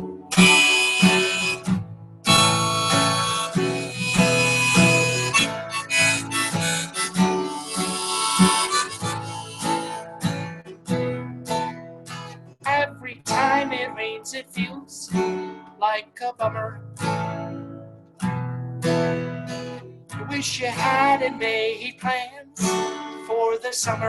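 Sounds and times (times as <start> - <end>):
harmonica melody: 0.0 - 10.8
strummed acoustic guitar: 0.0 - 24.0.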